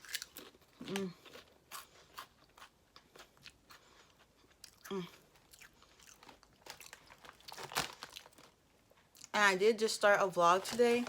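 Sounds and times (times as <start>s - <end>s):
potato chips crunching while chewed: 0.0s - 8.6s
person's voice: 9.4s - 11.0s.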